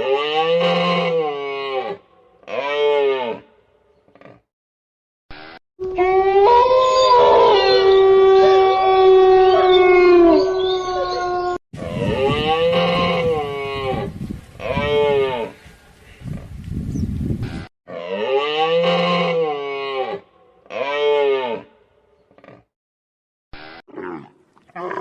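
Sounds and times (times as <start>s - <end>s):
animal calls rising and falling: 5.4s - 11.6s
animal howling: 5.8s - 11.6s.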